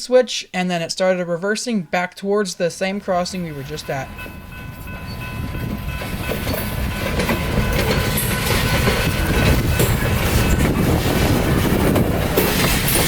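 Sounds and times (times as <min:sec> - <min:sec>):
diesel locomotive low rumble: 0:03.1 - 0:13.0
wheels clacking over rail joints: 0:03.6 - 0:13.0.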